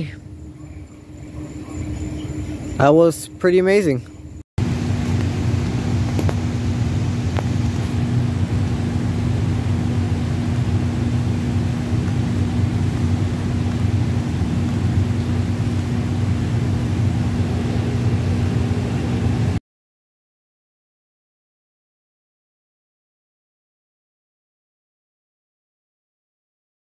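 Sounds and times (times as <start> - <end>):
mechanical hum: 0.0 - 19.6.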